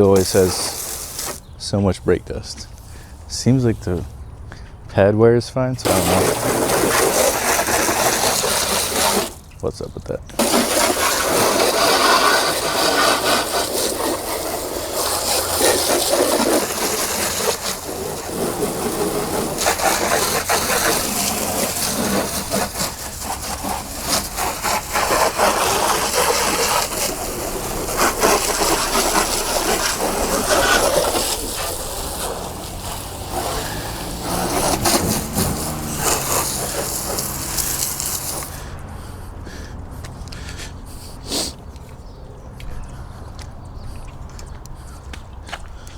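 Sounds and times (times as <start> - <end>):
brush scrubbing car wheel: 0.0 - 1.5, 5.8 - 9.6, 10.3 - 38.8.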